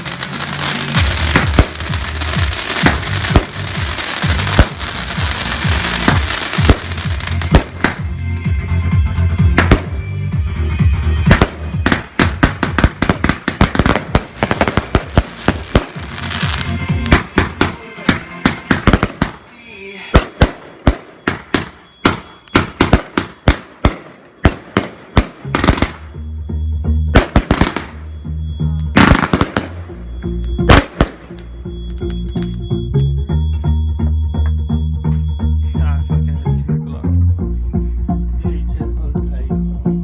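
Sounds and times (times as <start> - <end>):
fireworks bangs and crackles: 0.0 - 8.3, 9.4 - 10.2, 11.2 - 26.2, 27.1 - 28.0, 28.9 - 29.8, 30.6 - 32.6
music playing: 0.0 - 40.0.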